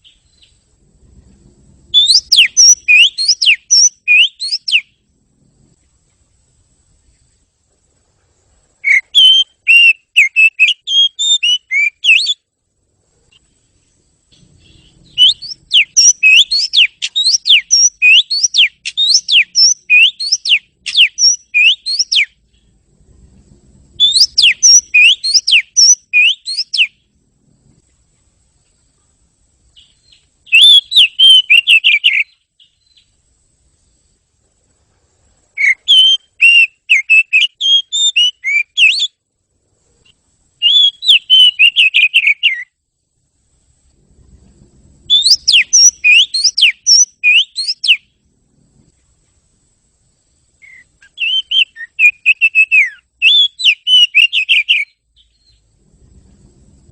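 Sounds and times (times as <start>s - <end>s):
magpie-robin whistled song: 0.0s - 0.6s, 1.9s - 5.0s, 8.8s - 12.4s, 14.3s - 22.6s, 24.0s - 27.0s, 29.8s - 33.2s, 35.6s - 39.2s, 40.6s - 42.8s, 45.1s - 48.2s, 50.6s - 55.7s.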